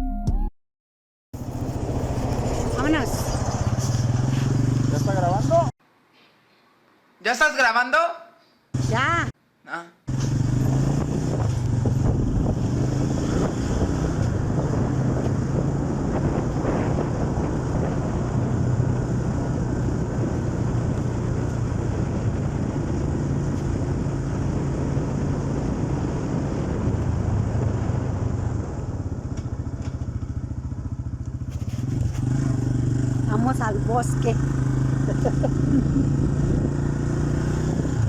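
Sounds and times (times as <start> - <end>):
wind on microphone: 1.4 - 4.8, 10.6 - 30.5, 31.4 - 38.0
motorcycle engine running: 1.4 - 5.7, 8.8 - 9.3, 10.1 - 38.0.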